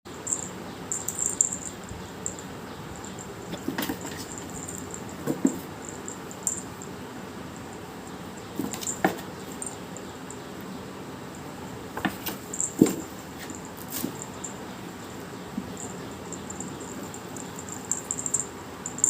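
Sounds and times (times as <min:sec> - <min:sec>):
steady background hiss: 0:00.1 - 0:19.0
kitten tapping and scuffing: 0:03.5 - 0:05.7, 0:08.6 - 0:09.3, 0:11.9 - 0:14.4.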